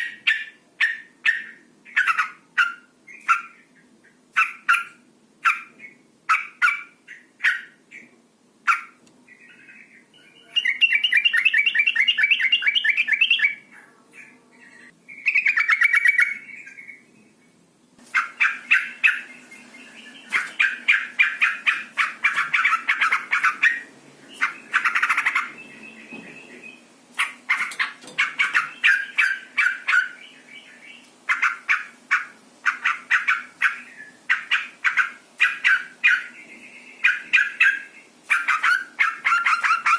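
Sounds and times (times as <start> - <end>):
bird chattering calls: 18.1 - 36.4, 37.0 - 39.9.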